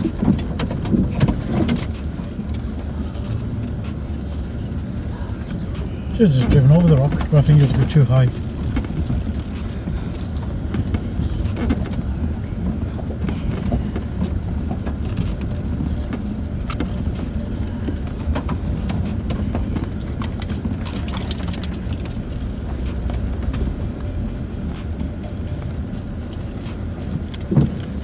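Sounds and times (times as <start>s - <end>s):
knocks and rattles of jolted cabin: 0.0s - 2.2s, 6.2s - 24.5s
engine and tyres rumbling: 0.0s - 28.0s.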